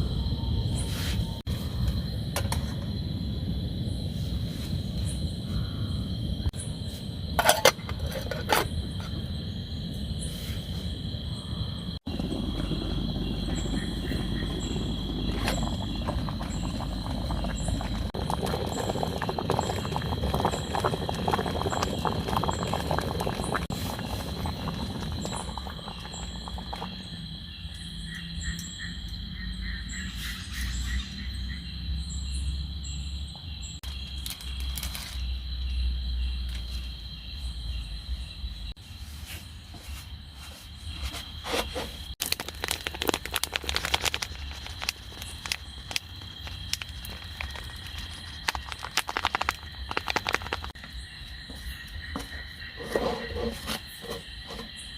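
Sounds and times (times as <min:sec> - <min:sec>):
crickets trilling: 0:00.0 - 0:54.9
insect chirping in pulses: 0:00.0 - 0:54.9
low outdoor rumble: 0:11.0 - 0:28.0.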